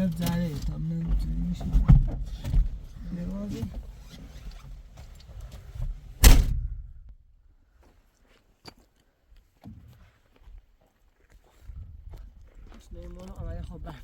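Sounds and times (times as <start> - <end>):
loud thump: 6.2 - 7.1.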